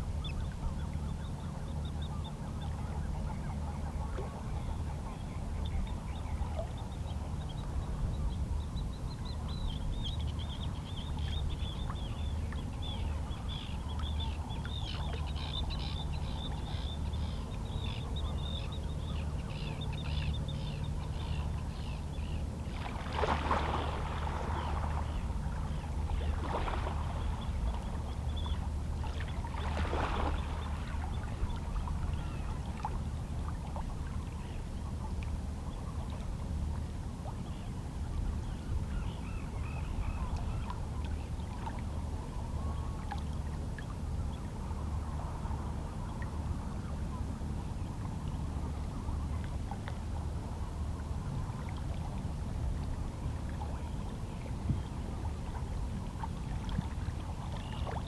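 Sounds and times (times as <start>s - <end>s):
low sea rumble: 0.0s - 58.0s
water splashes: 22.7s - 25.2s, 26.1s - 28.0s, 29.0s - 34.1s
small waves lapping on rocks: 29.3s - 31.0s.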